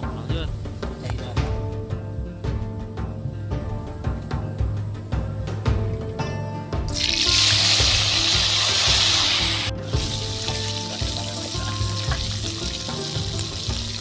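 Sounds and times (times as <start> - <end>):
insects frying in hot oil: 6.9 - 14.0.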